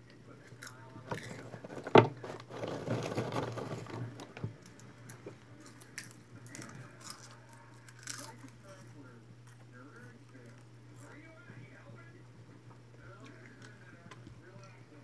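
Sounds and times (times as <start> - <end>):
popcorn crunching and chewing: 0.0 - 11.3.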